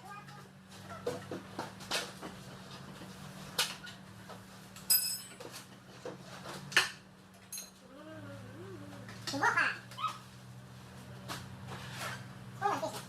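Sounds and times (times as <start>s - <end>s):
metal tools clinking: 4.8s - 5.5s.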